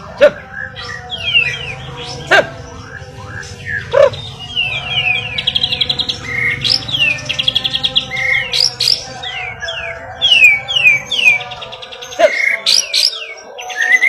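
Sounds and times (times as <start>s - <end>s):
bird whistling and trilling: 2.8s - 14.0s.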